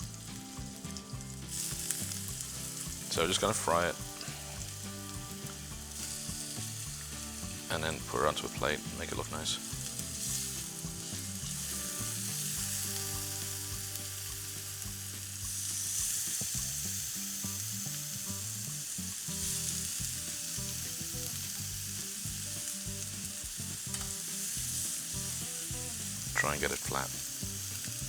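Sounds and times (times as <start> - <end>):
chicken sizzling in a frying pan: 0.0 - 28.0.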